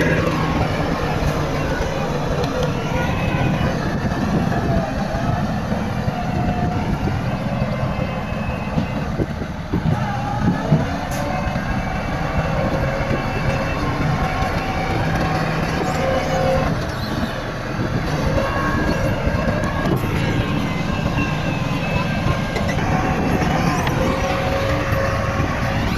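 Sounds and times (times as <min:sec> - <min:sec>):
diesel engines running: 0:00.0 - 0:25.9
metallic squealing and clanking: 0:00.0 - 0:25.9.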